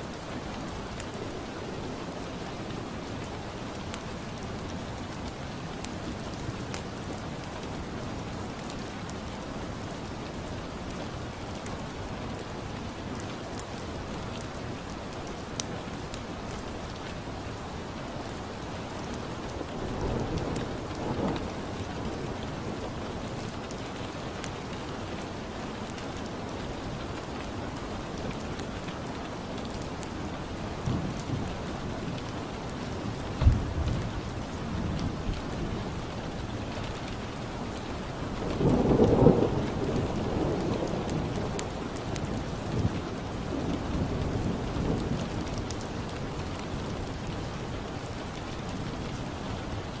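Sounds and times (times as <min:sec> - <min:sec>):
rain falling: 0:00.0 - 0:50.0
thunder rumble: 0:33.2 - 0:35.7.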